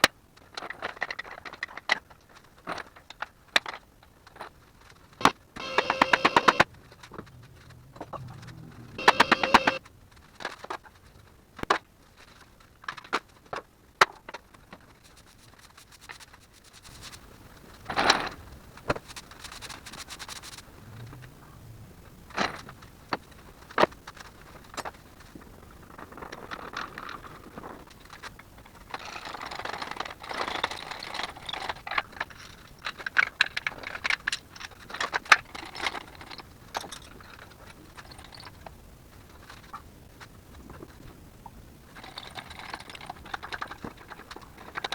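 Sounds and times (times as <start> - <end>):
metal scraping: 5.6 - 9.8
metal parts rattling: 42.0 - 44.9.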